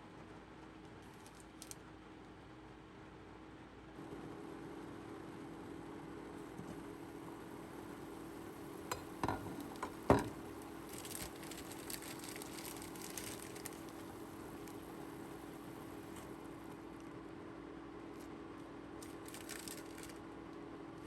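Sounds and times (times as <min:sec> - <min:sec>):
steady low hum: 0:04.0 - 0:21.0.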